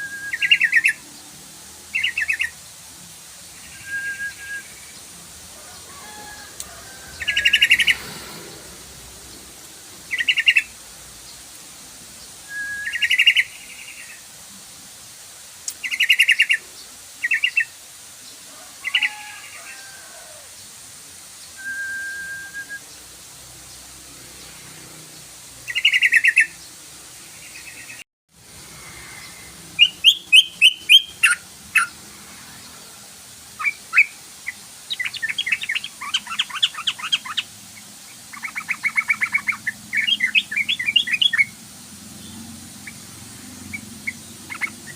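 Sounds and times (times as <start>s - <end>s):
bird chirping: 0.0s - 1.2s, 1.9s - 2.6s, 7.0s - 11.4s, 12.2s - 14.2s, 15.7s - 17.7s, 25.6s - 26.7s, 28.6s - 32.0s, 33.6s - 43.0s, 43.6s - 44.9s.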